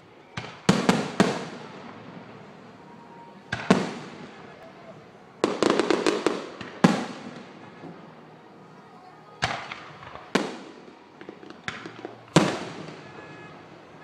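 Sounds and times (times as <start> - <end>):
fireworks crackling: 0.0 - 14.0
fireworks booms with echo: 0.2 - 4.6, 5.4 - 8.1, 9.4 - 13.8.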